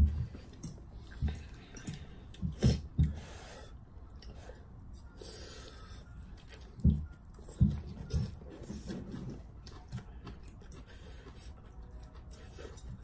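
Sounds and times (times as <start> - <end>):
chewing: 4.1 - 13.0.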